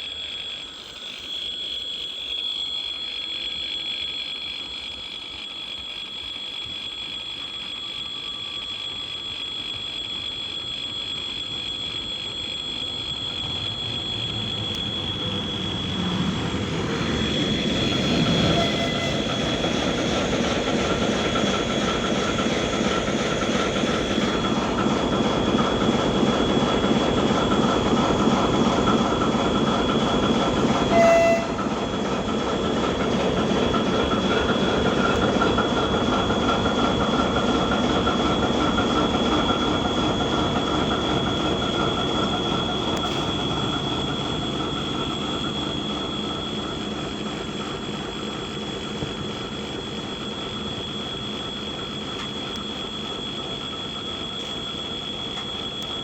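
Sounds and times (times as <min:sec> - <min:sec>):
diesel locomotive engine running: 0:00.0 - 0:56.0
high whine: 0:00.0 - 0:56.0
short loud horn tone: 0:18.4 - 0:19.5, 0:30.9 - 0:31.7.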